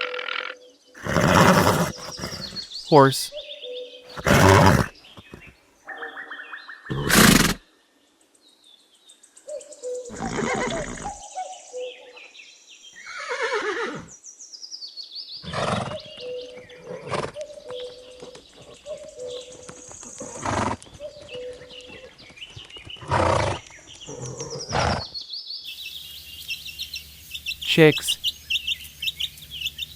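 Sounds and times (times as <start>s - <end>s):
horse neighing: 1.0s - 3.3s, 4.1s - 5.5s, 6.9s - 7.6s, 10.1s - 11.2s, 13.1s - 14.1s.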